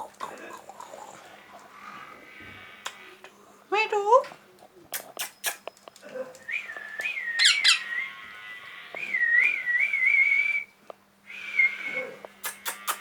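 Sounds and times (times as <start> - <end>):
parrot whistling: 6.5 - 8.3
parrot chirping: 7.2 - 8.2.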